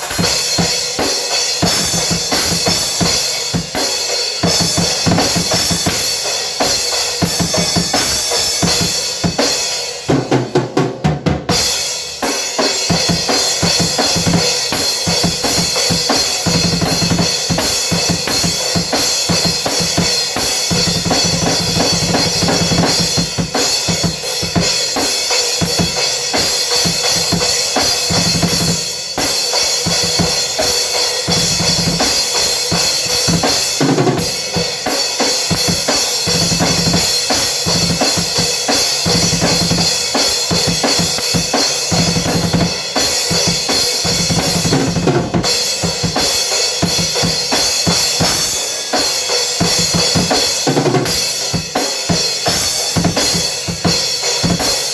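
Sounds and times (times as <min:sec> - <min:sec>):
cymbals: 0:00.0 - 0:10.1
bass drum: 0:12.9 - 0:24.9, 0:25.6 - 0:34.8, 0:35.4 - 0:48.5.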